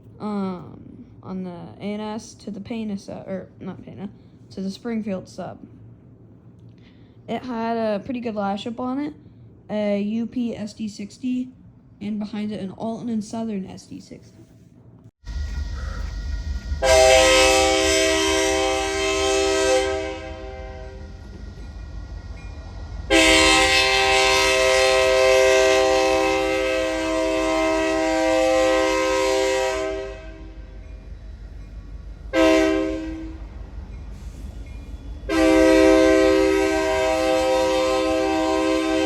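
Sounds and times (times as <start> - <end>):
low engine rumble: 15.2 - 39.0
locomotive air horn blasts: 16.8 - 21.2, 23.1 - 30.8, 32.3 - 33.5, 35.3 - 39.0.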